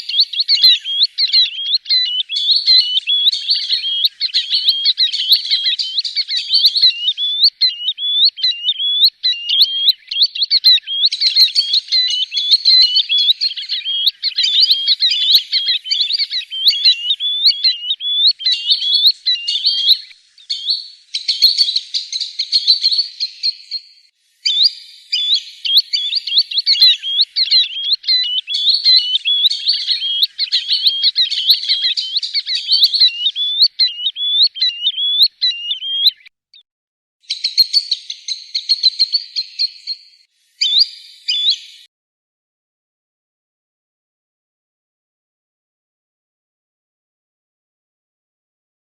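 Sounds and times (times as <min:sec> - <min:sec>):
sandpiper fluty whistled calls: 0:00.0 - 0:36.3, 0:37.2 - 0:41.9.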